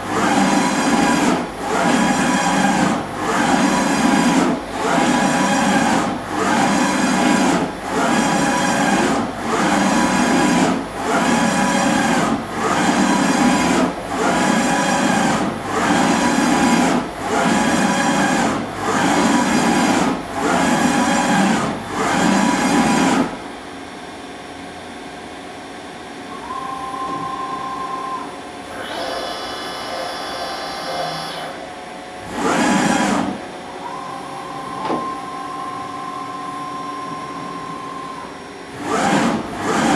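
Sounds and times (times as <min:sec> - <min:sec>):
machine hum: 0:24.5 - 0:39.9
brief whining tones: 0:26.3 - 0:31.7, 0:33.8 - 0:38.5.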